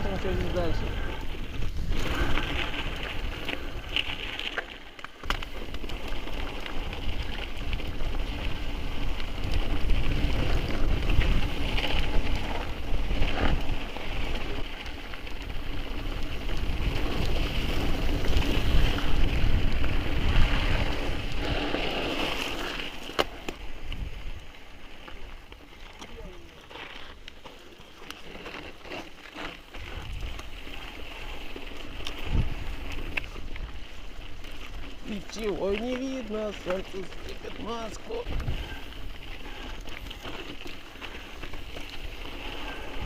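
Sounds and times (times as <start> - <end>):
wind buffeting microphone: 0.0 - 4.4, 5.4 - 14.7, 15.3 - 22.3, 29.8 - 43.0
bike tyres rumbling over ground: 0.0 - 43.0.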